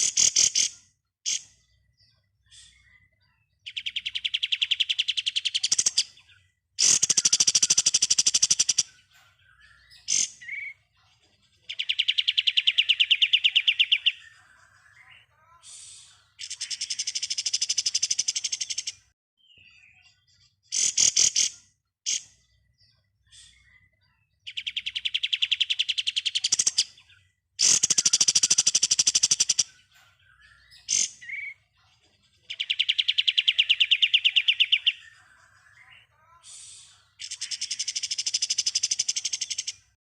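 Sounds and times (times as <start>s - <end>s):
bird chattering calls: 0.0s - 1.6s, 3.7s - 10.8s, 11.7s - 15.2s, 16.4s - 19.1s, 20.7s - 22.4s, 24.5s - 31.6s, 32.5s - 36.4s, 37.1s - 40.0s
songbird rattling trill: 6.8s - 8.9s, 27.6s - 29.7s.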